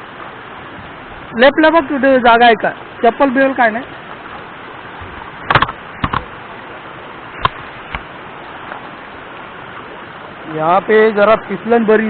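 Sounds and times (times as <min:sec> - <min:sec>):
rushing water: 0:00.0 - 0:12.0
knocks and clicks: 0:05.5 - 0:06.3.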